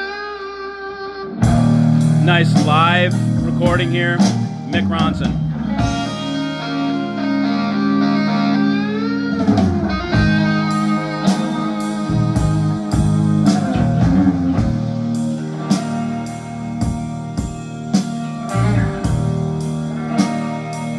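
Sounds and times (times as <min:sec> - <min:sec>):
electric guitar sustained notes: 0:00.0 - 0:20.9.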